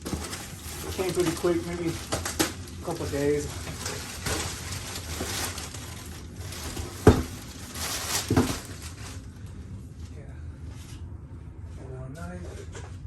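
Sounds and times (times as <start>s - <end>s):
packaging rustling: 0.0s - 9.4s.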